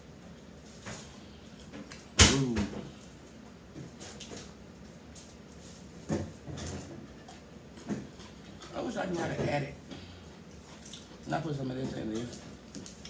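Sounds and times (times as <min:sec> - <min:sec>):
chewing and wet mouth clicks: 0:10.4 - 0:11.3, 0:12.1 - 0:13.0.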